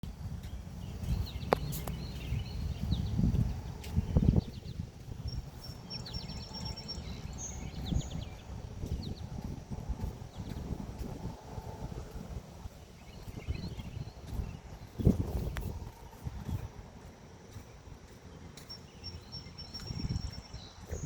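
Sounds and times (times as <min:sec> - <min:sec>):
small birds chirping: 0:00.0 - 0:21.0
wind on microphone: 0:00.1 - 0:17.1, 0:19.6 - 0:21.0.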